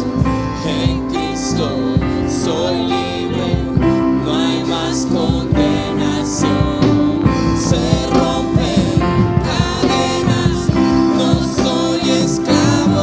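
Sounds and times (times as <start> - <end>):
singing over band: 0.0 - 13.0
steady drum beat: 0.0 - 13.0.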